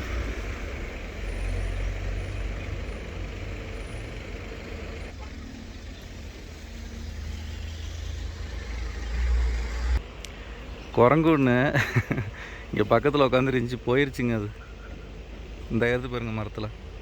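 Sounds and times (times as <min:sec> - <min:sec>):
motorcycle engine hum: 0:00.0 - 0:11.0
traffic noise: 0:00.0 - 0:17.0.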